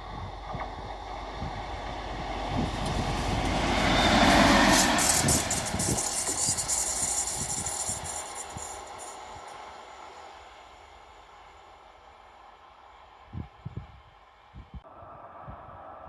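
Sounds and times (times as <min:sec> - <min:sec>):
wheels knocking on track: 0:00.0 - 0:10.0
train passing: 0:00.0 - 0:14.6.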